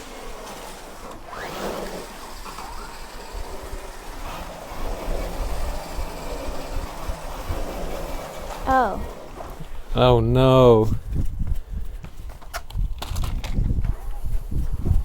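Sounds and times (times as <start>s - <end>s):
toy cars whirring: 0.0s - 9.3s
wind buffeting microphone: 0.0s - 15.0s.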